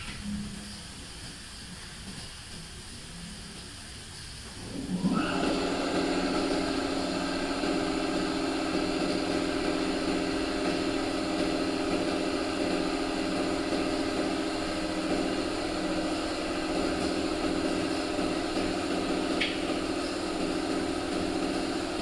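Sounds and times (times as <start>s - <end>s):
motor-driven machine running: 4.6s - 22.0s.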